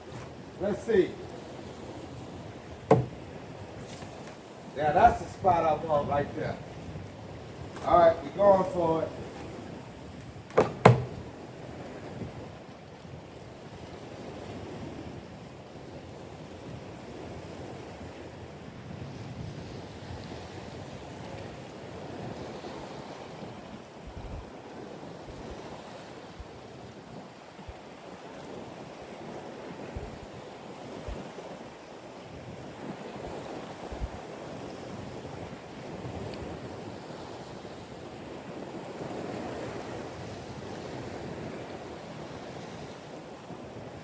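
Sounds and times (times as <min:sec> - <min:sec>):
ocean waves: 0:00.0 - 0:15.1, 0:30.8 - 0:44.0
wind: 0:00.0 - 0:44.0.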